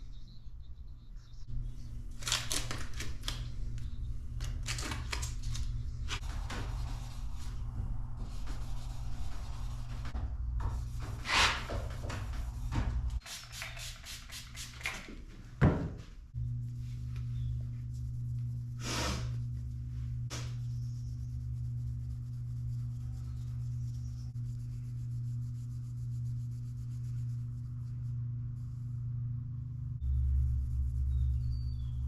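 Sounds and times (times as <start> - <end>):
low mechanical hum: 0.0 - 32.0
short rubbing hissing noises: 11.2 - 11.7, 18.8 - 19.4.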